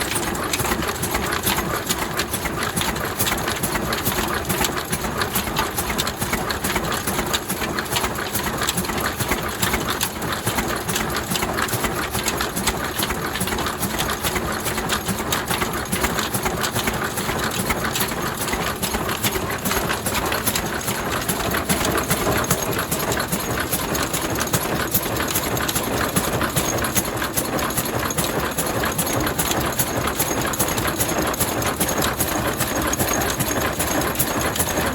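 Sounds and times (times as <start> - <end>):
diesel engine running: 9.0 - 34.9.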